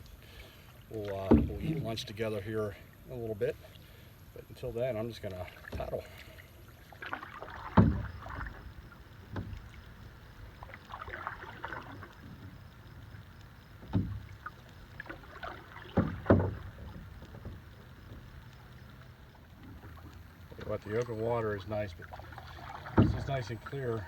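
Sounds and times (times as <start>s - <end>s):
paddle splashing in water: 0.2s - 4.1s, 5.0s - 24.0s
paddle knocking against canoe: 1.1s - 2.4s, 5.2s - 6.2s, 6.9s - 21.4s, 22.0s - 24.0s.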